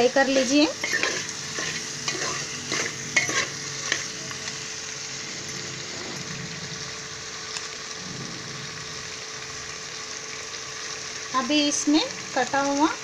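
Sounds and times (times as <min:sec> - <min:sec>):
food sizzling in pot: 0:00.0 - 0:13.0
steel ladle scraping pot: 0:00.3 - 0:04.1.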